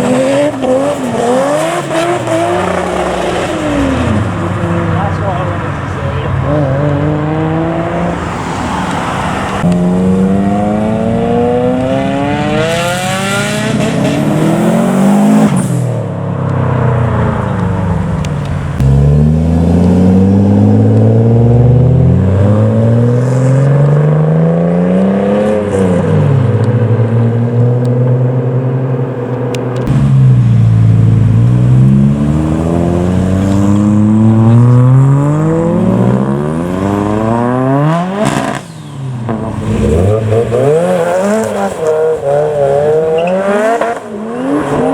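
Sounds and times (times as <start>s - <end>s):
car engines accelerating hard: 0.0s - 44.9s.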